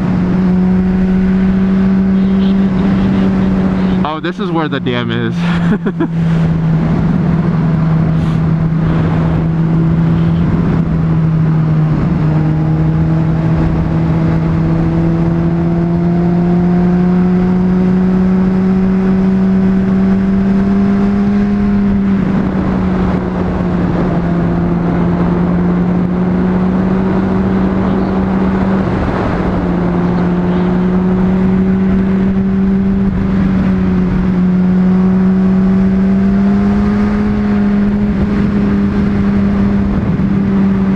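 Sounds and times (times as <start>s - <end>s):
wind noise: 5.8s - 15.5s, 21.1s - 40.9s.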